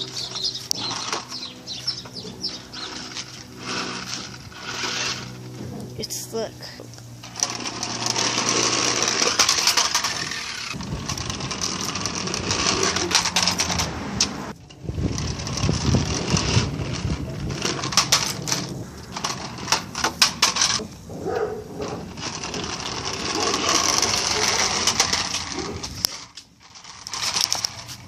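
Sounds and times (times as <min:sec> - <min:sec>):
toy car motor whirring: 0:00.0 - 0:20.9, 0:21.8 - 0:28.0
sharp clicks and knocks: 0:06.8 - 0:21.0
rattling and clattering: 0:07.2 - 0:28.0.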